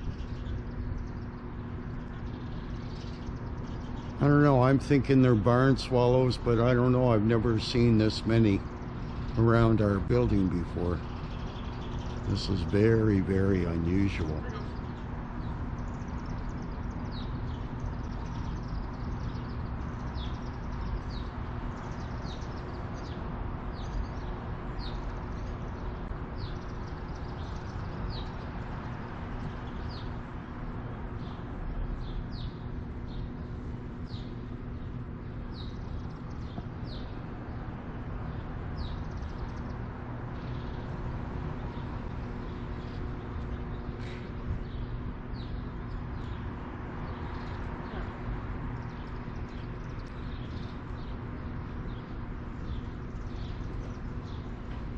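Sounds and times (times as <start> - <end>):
low hum and rumble: 0.0 - 54.9
small birds chirping: 0.0 - 54.9.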